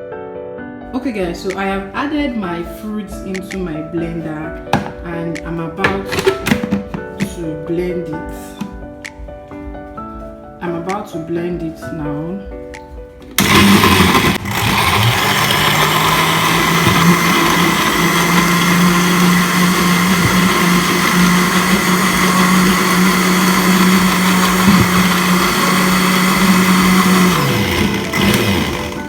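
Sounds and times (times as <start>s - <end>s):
electric blender running: 4.8s - 5.0s, 5.9s - 7.0s, 13.3s - 29.0s.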